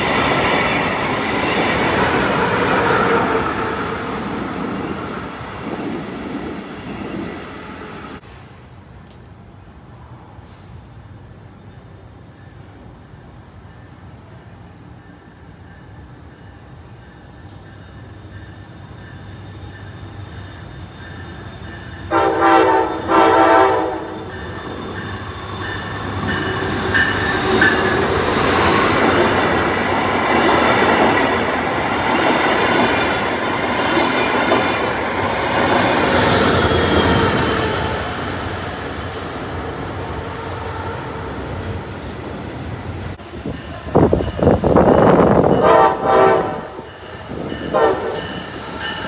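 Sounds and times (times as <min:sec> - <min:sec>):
train wheels rumbling on rails: 0:00.0 - 0:49.0
train horn blasts: 0:22.1 - 0:24.3, 0:45.4 - 0:46.8, 0:47.6 - 0:48.4.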